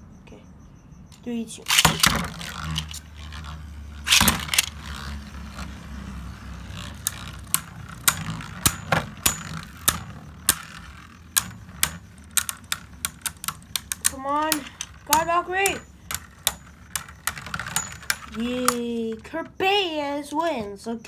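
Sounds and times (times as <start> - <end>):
spinning top launcher rip: 1.7 - 12.6
spinning tops clashing clicks: 1.7 - 19.2
spinning tops whirring: 1.7 - 19.2.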